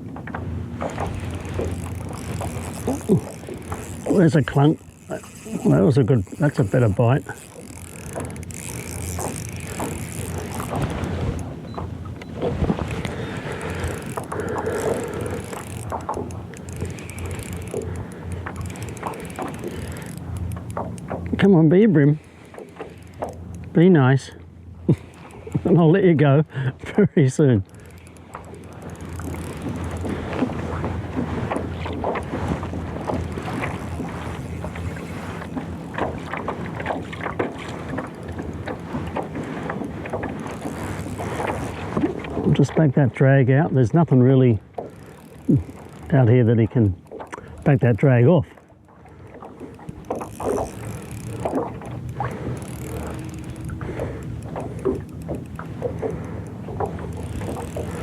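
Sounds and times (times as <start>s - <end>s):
wind buffeting microphone: 0.0s - 23.8s
water lapping against boat hull: 0.0s - 58.0s
fishing reel rattling: 0.3s - 26.0s, 27.3s - 42.5s, 44.7s - 47.9s, 48.6s - 58.0s.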